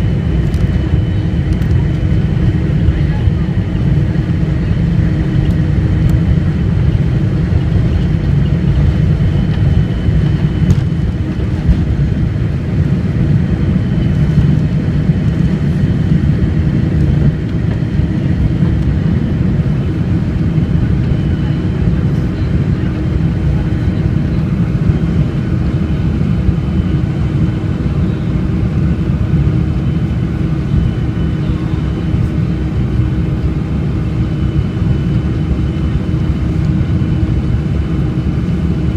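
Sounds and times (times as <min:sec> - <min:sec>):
jet engines roaring at takeoff: 0:00.0 - 0:38.9.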